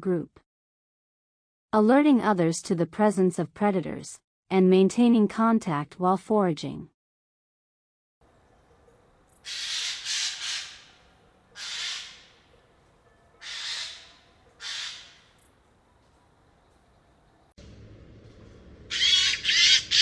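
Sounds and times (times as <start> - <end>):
jay harsh screeches: 11.6 - 12.2, 13.4 - 15.2.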